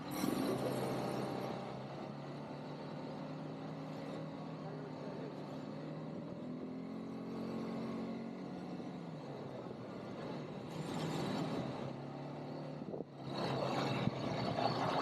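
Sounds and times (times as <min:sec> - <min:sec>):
quad bike engine running: 0:00.0 - 0:15.0.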